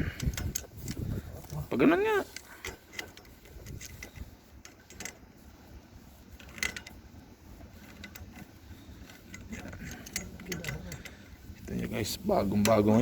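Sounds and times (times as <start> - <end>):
clicks and knocks on pipe fittings: 0.0 - 1.6, 2.3 - 5.3, 7.7 - 11.7.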